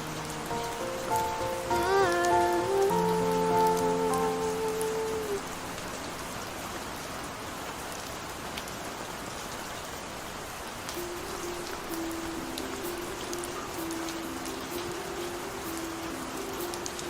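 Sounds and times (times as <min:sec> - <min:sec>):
soft song notes: 0:00.0 - 0:06.4, 0:11.0 - 0:17.0
steady rainfall: 0:00.0 - 0:17.0.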